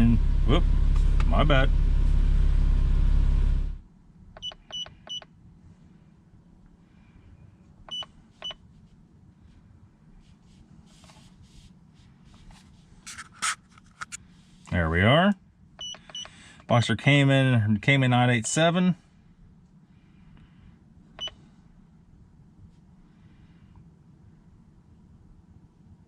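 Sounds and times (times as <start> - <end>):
steady low rumble: 0.0 - 13.1, 14.1 - 26.0
scan tool beeps: 15.8 - 16.3.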